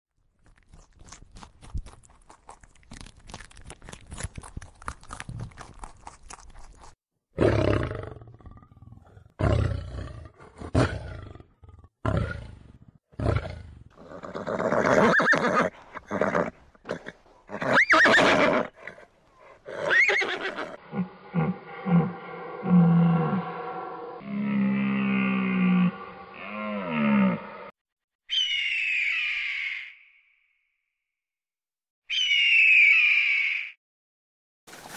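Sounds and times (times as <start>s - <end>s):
animal chewing: 0.2s - 7.0s.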